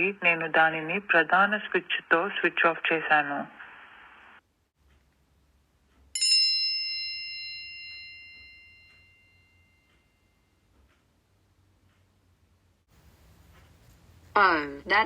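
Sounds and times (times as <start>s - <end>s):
bell-like chime: 6.2s - 10.6s.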